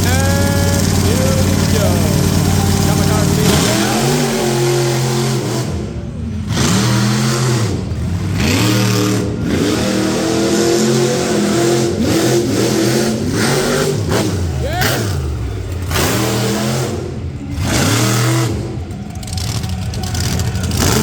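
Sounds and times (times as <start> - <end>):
monster truck engine revving: 0.0 - 21.0.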